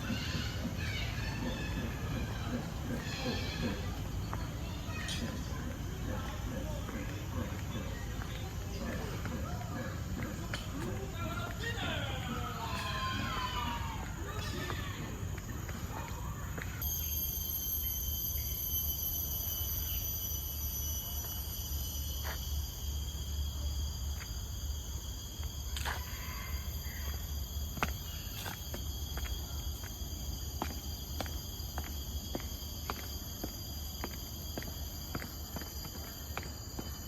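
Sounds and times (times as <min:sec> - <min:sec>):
insects chirping: 0:00.0 - 0:37.0
walking footsteps: 0:02.6 - 0:16.8, 0:27.1 - 0:37.0.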